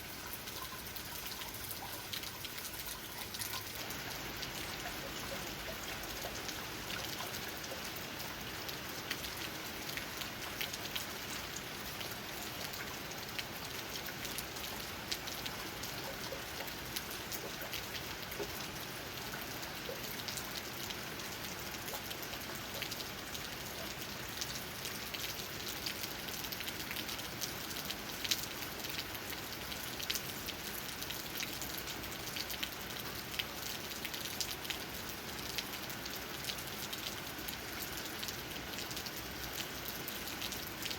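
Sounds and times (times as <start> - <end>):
rain on leaves: 0.0 - 40.9.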